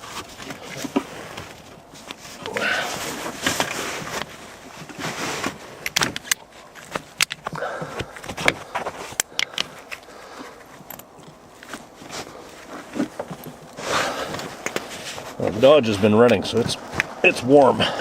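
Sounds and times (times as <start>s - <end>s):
metallic clicks of hose fittings: 5.8s - 11.8s.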